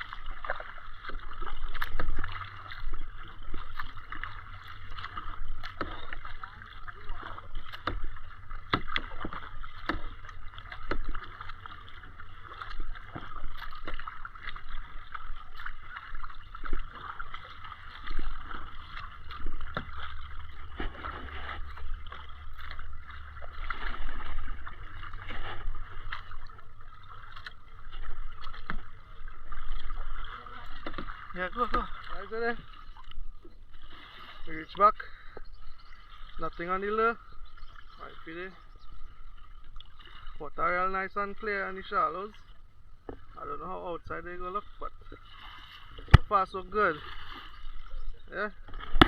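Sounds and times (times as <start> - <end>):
paddle splashing water: 0.0 - 49.0
water moving around hull: 0.0 - 49.0.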